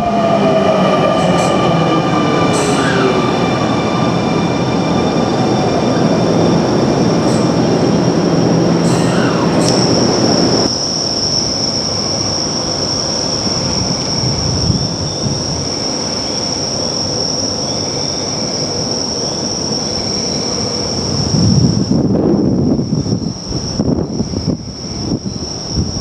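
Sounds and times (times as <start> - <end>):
high-pitched train whine: 0.0 - 22.1
electric train rumble: 0.0 - 26.0.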